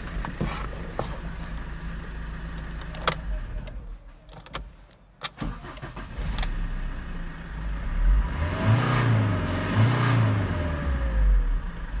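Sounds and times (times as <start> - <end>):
diesel engine revving: 5.3 - 12.0.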